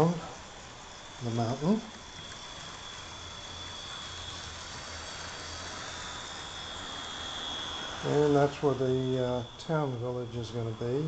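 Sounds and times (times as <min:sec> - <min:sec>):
model train humming: 0:00.0 - 0:11.0
thin high whine: 0:00.0 - 0:11.0.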